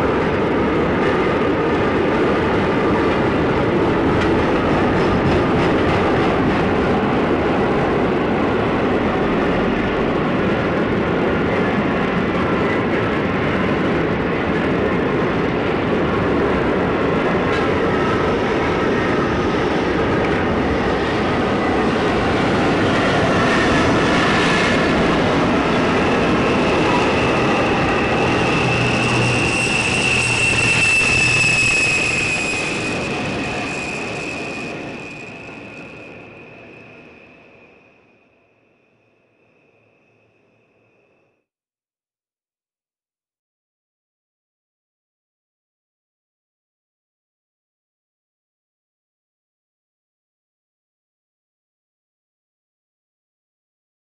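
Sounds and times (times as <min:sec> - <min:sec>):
train rolling noise: 0:00.0 - 0:41.1.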